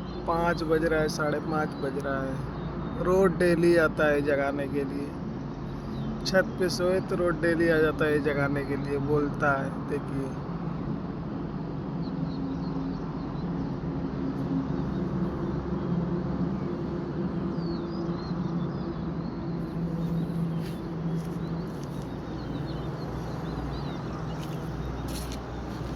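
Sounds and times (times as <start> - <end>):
low droning hum: 10.4 - 25.9
high bird chirps: 19.6 - 25.9.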